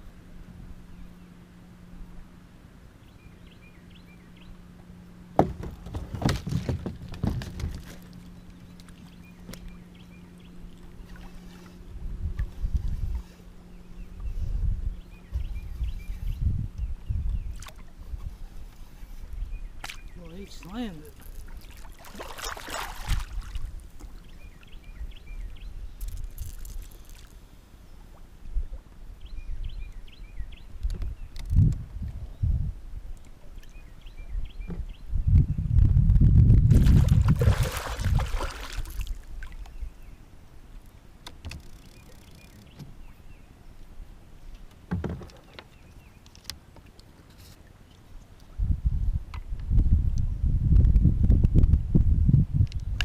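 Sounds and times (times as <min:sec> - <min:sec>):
low wind rumble: 0:00.0 - 0:41.9, 0:48.2 - 0:53.0
low steady hum: 0:00.0 - 0:53.0
gear knocking against kayak: 0:05.4 - 0:08.0
water splashing against kayak: 0:19.8 - 0:24.3, 0:36.7 - 0:39.8.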